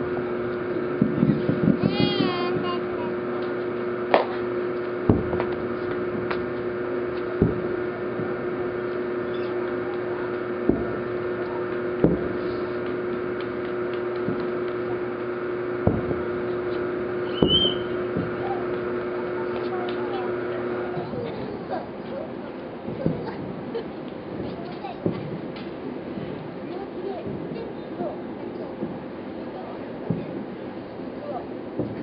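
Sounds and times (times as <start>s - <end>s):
steady hum: 0.0s - 32.0s
distant firework booms: 0.7s - 21.4s, 22.8s - 25.6s.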